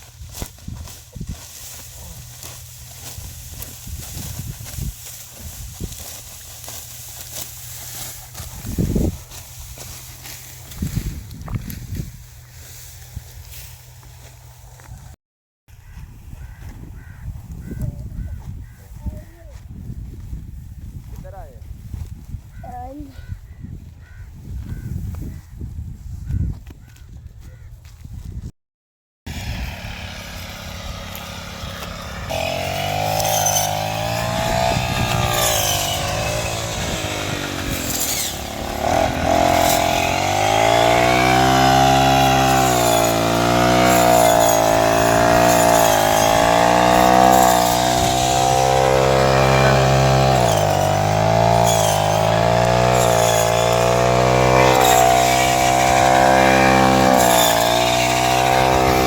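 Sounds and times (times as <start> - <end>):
farm machine engine under load: 29.3 - 59.0.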